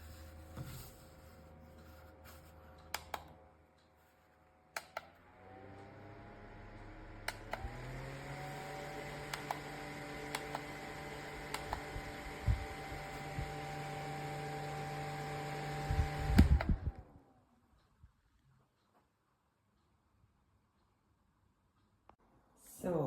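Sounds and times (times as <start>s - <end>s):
desk fan motor whirring: 4.7s - 17.5s.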